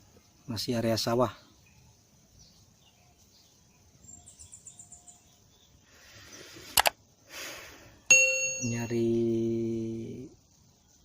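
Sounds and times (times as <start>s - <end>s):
faint bird chirping: 0.0s - 11.0s
sharp click: 6.8s - 7.0s.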